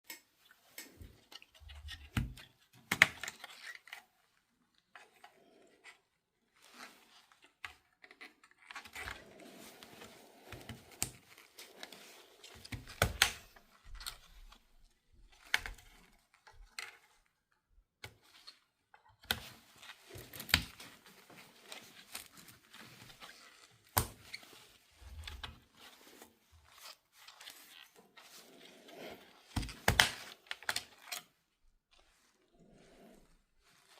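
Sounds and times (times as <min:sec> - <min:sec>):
rustling: 0:19.3 - 0:33.9.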